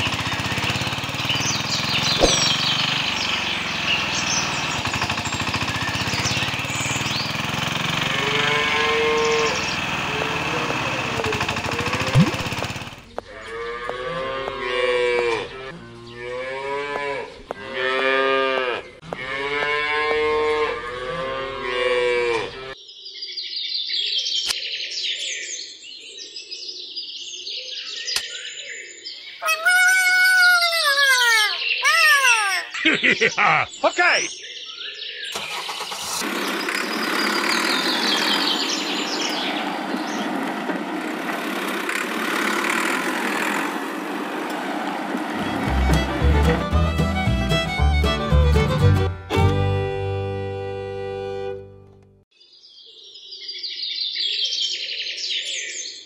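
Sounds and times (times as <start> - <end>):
loud falling pitch sound: 2.0 - 2.9
cattle mooing: 8.1 - 9.7, 13.3 - 22.8.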